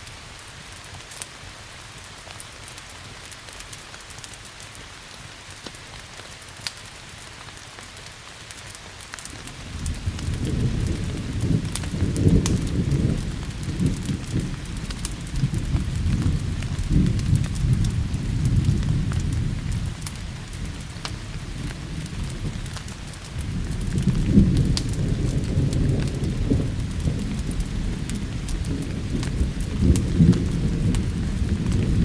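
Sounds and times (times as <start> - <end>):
steady rain: 0.0 - 32.0
wood fire crackling: 0.0 - 32.0
rolling thunder: 9.4 - 32.0.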